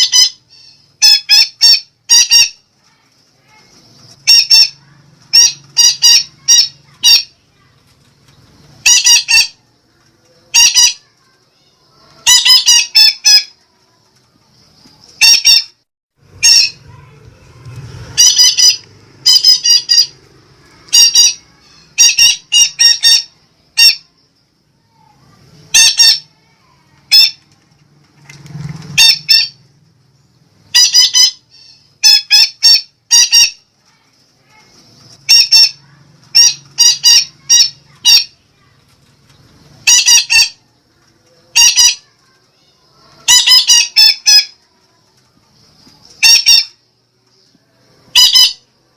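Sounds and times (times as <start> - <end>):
parakeet squawking: 0.0 - 2.6, 3.5 - 7.4, 8.8 - 9.6, 10.5 - 11.2, 12.2 - 13.6, 15.2 - 17.1, 18.0 - 24.2, 25.7 - 27.5, 29.0 - 29.6, 30.7 - 33.7, 34.6 - 38.4, 39.8 - 40.6, 41.4 - 42.2, 43.0 - 44.6, 46.2 - 46.8, 48.0 - 48.7.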